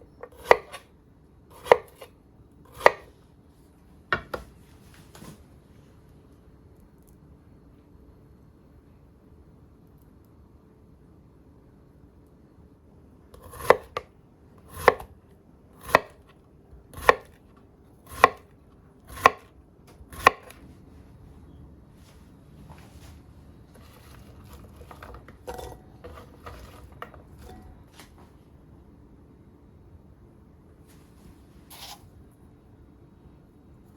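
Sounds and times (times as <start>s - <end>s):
knife chopping on cutting board: 0.2s - 0.8s, 1.5s - 2.1s, 2.7s - 3.1s, 13.4s - 14.0s, 14.7s - 15.1s, 15.8s - 16.3s, 16.9s - 17.4s, 18.0s - 18.5s, 19.1s - 19.5s, 20.1s - 20.6s.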